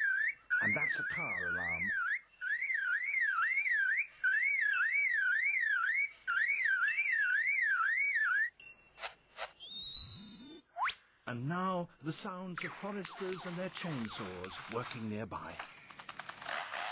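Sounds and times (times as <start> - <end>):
bird warbling siren-like call: 0.0 - 8.6, 9.6 - 11.0
sharp bird calls: 0.0 - 8.6.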